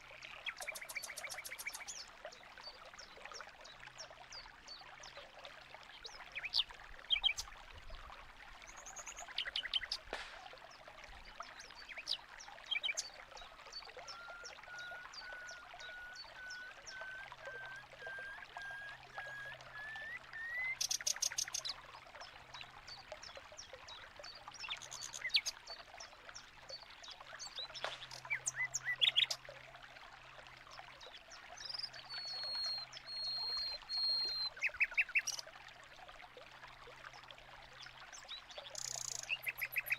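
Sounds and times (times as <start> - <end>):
running water: 0.0 - 39.9
bird high whistle: 14.1 - 20.8.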